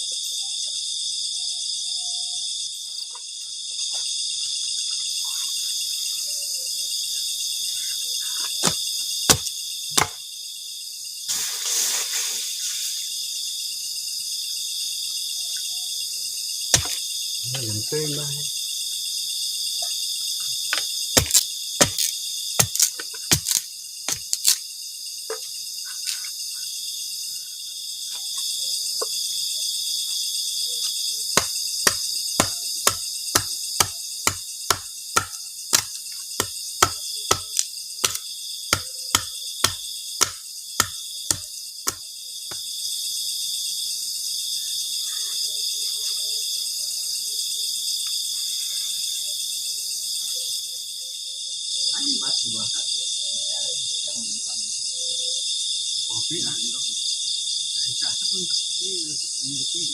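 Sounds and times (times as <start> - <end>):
night insects chirping: 0.0 - 59.9
sharp chopping knocks: 8.6 - 10.2, 16.8 - 17.0, 20.7 - 24.6, 31.4 - 42.0.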